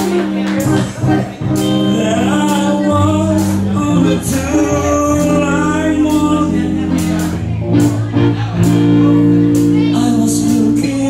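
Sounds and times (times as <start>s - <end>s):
pop song with sung vocals: 0.0s - 7.2s, 9.7s - 11.0s.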